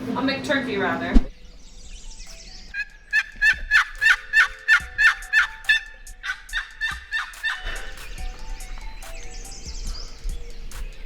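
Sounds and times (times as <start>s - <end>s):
turkey yelping: 2.7s - 10.8s.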